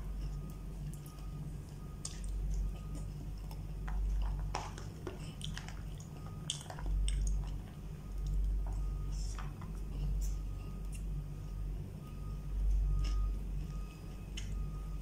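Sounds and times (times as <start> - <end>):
man chewing food: 0.0 - 15.0.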